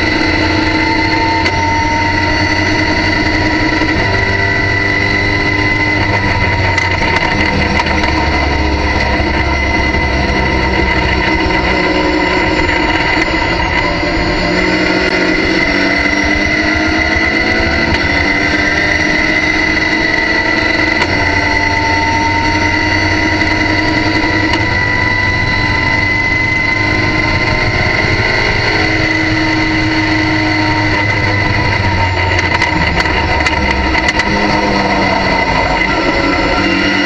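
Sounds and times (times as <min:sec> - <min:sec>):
high whine: 0:00.0 - 0:37.0
race car engine at full throttle: 0:00.0 - 0:37.0.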